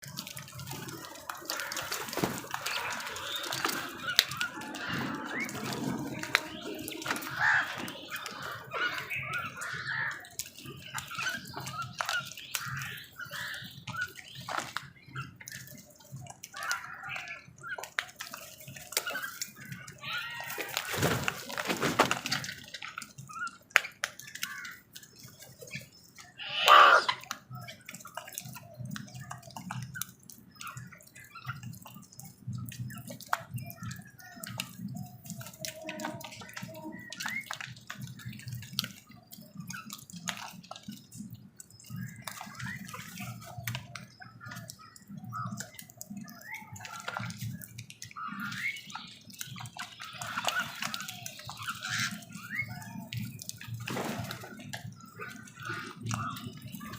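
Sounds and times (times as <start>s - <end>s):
crow cawing: 7.2s - 7.8s, 26.4s - 27.2s
short bird calls: 26.3s - 27.2s.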